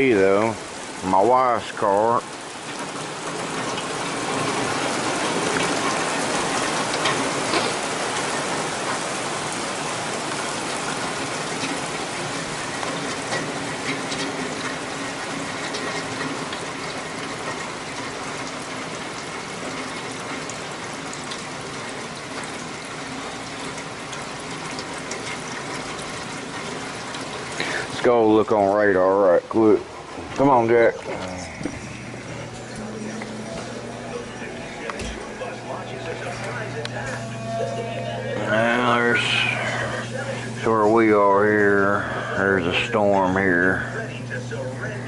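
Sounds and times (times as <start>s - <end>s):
heavy rain pouring: 0.0s - 45.0s.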